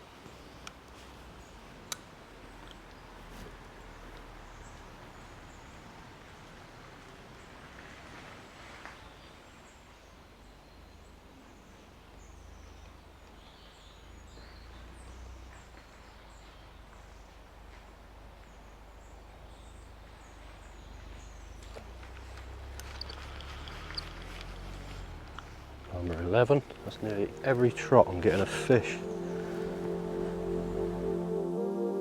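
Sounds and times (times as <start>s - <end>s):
small birds chirping: 18.5s - 30.4s
steady background hiss: 25.6s - 32.0s.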